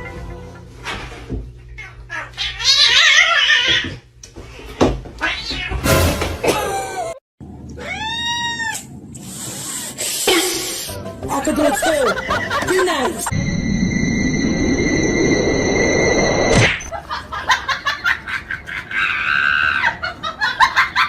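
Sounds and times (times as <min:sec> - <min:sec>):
cats meowing: 0:01.7 - 0:04.0, 0:05.2 - 0:05.8, 0:07.7 - 0:08.9.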